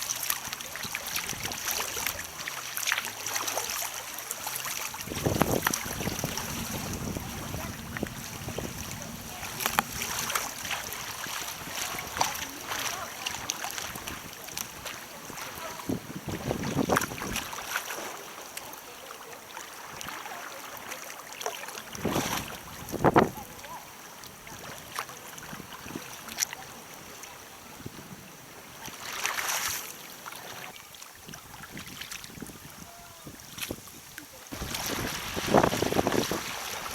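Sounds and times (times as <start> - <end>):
moving water: 0.0 - 36.9
paddle splashes: 0.0 - 36.9
wind buffeting microphone: 4.9 - 17.7, 21.9 - 26.2, 31.2 - 36.9.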